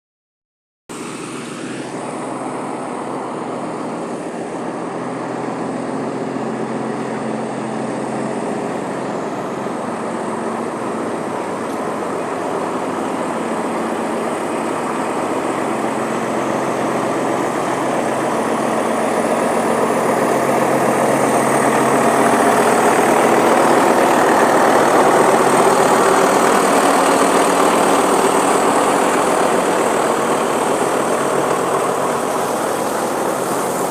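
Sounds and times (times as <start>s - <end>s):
heavy diesel engine running: 0.9s - 33.9s.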